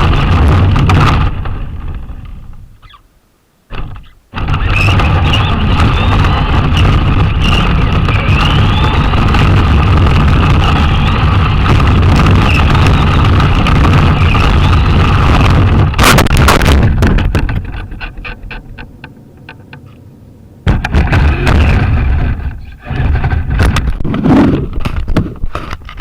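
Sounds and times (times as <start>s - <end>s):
loud noisy burst: 0.0s - 2.3s, 3.7s - 18.4s, 20.6s - 23.8s
rc car drivetrain rumble: 3.7s - 16.0s, 20.7s - 24.7s
motor and gear whine: 4.4s - 16.0s.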